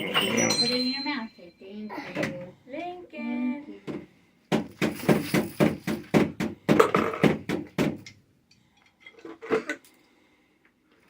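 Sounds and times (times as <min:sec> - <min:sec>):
hard objects clattering: 0:04.5 - 0:07.8.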